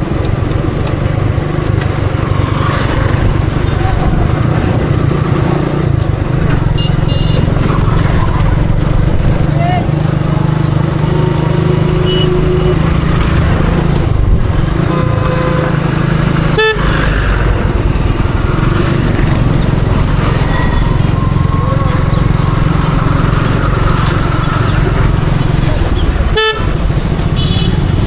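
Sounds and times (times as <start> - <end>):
motorcycle engine running: 0.0 - 28.0
vehicle horn toots: 6.8 - 7.5, 11.9 - 13.0, 14.8 - 17.2, 26.3 - 28.0.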